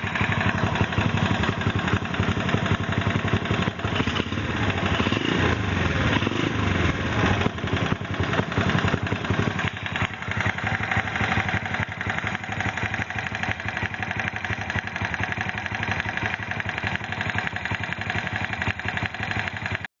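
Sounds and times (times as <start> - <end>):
motorcycle engine clattering: 0.0 - 19.9.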